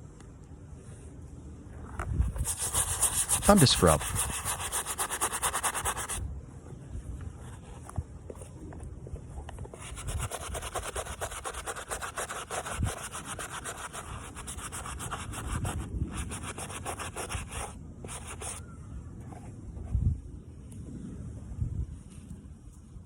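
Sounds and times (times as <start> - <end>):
brush scrubbing a sneaker: 2.3 - 6.2, 9.7 - 18.6.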